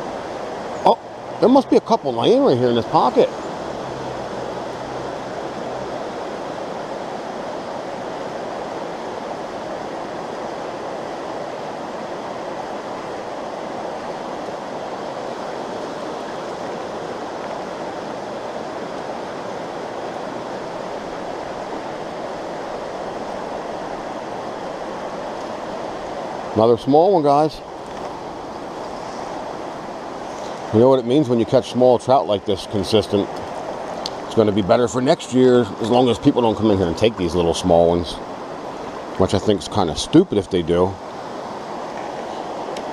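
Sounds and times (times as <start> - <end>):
water rushing over rocks: 0.0 - 42.9.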